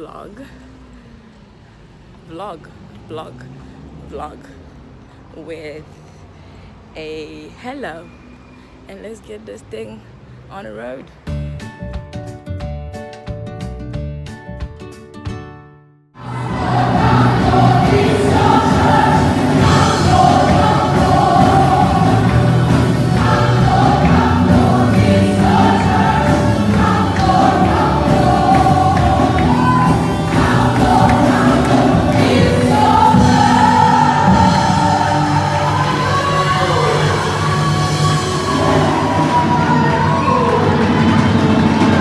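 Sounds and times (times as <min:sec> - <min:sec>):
choir singing gospel: 0:16.2 - 0:42.0.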